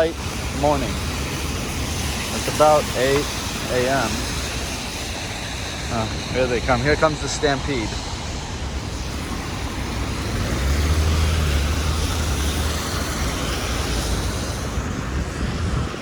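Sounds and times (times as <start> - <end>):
tyres hissing on wet pavement: 0.0 - 16.0
vehicle engine rumble: 0.0 - 16.0.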